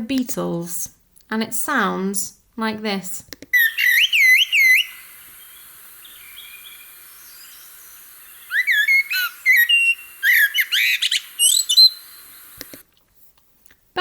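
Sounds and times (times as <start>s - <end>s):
blackbird singing: 3.6s - 12.5s.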